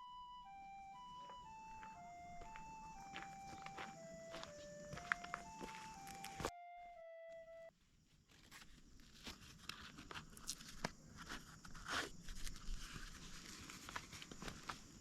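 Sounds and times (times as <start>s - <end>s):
footsteps on dry leaves and twigs: 1.2s - 6.5s.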